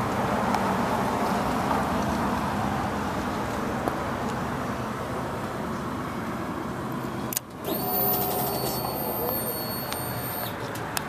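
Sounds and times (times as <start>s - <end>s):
click: 9.9s - 11.0s.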